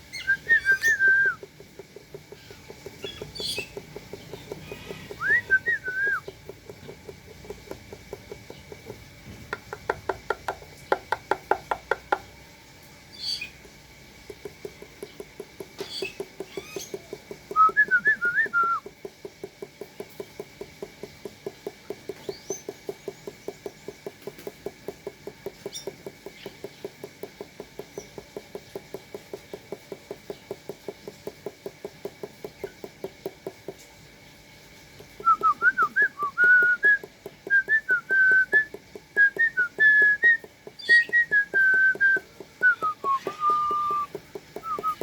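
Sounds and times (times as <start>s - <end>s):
person whistling: 0.2s - 1.4s, 5.2s - 6.2s, 17.5s - 18.8s, 35.2s - 45.0s.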